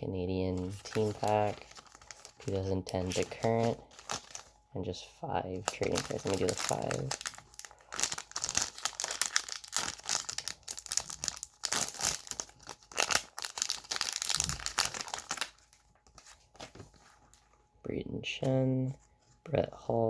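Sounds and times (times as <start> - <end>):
wrapper tearing and crinkling: 0.5 - 4.5, 5.6 - 16.9.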